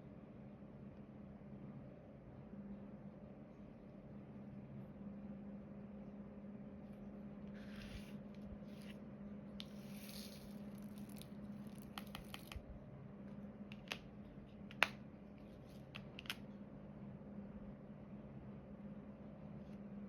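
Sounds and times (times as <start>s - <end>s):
faint steady hum: 0.0s - 20.0s
small sharp clicks and taps: 11.7s - 12.6s.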